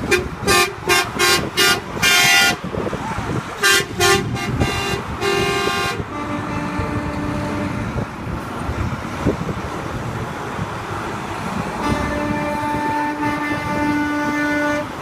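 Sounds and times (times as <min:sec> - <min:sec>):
truck horns honking: 0:00.0 - 0:08.4, 0:11.5 - 0:15.0
traffic noise: 0:00.0 - 0:15.0.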